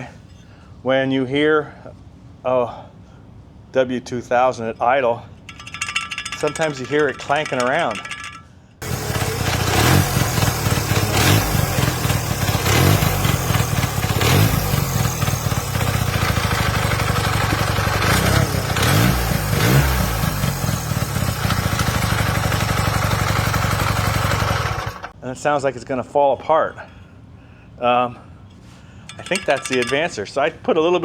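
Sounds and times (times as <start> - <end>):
engine idling with throttle blips: 7.5 - 25.2.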